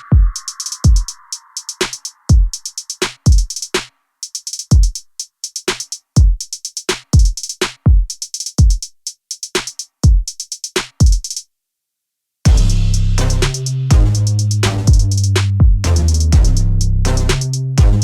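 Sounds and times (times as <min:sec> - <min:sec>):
crisp hi-hat ticks: 0:00.0 - 0:11.4, 0:13.5 - 0:17.7
deep kick drums: 0:00.1 - 0:01.1, 0:02.3 - 0:02.6, 0:12.5 - 0:16.8, 0:17.8 - 0:18.0.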